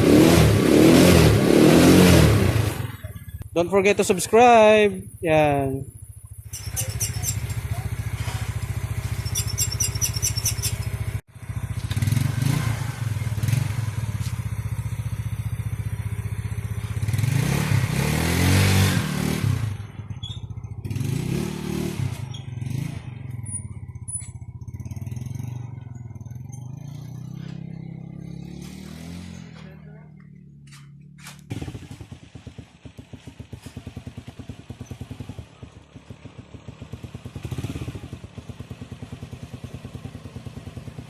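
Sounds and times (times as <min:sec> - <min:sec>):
scooter engine idling and revving: 0:00.0 - 0:41.0.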